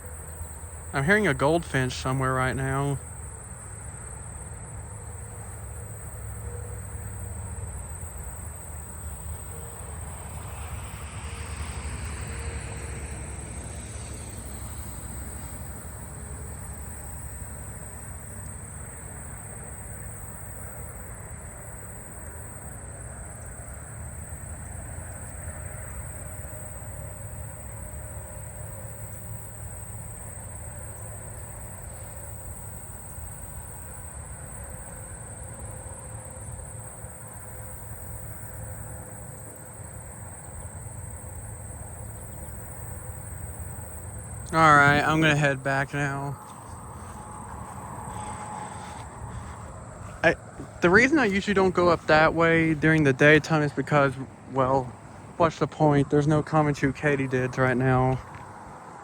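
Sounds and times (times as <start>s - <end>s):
insects droning: 0.0s - 59.0s
low background rumble: 38.5s - 55.6s.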